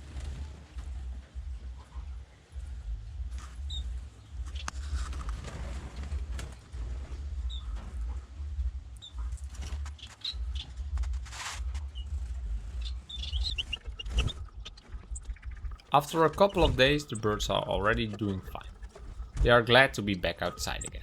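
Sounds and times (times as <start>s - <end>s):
low uneven rumble: 0.0s - 21.0s
finches chirping: 12.0s - 21.0s.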